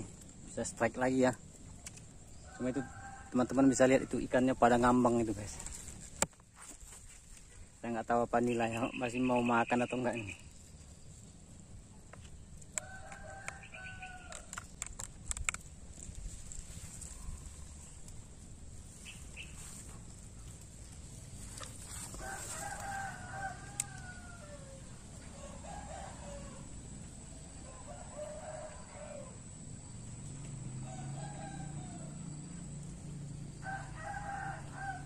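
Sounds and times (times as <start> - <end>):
drawn-out bird calls: 16.5 - 25.6.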